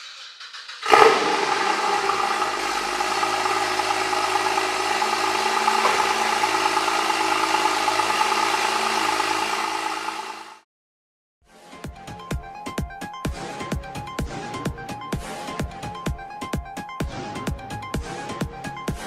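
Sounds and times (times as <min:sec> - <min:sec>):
car engine idling: 0:00.8 - 0:10.6.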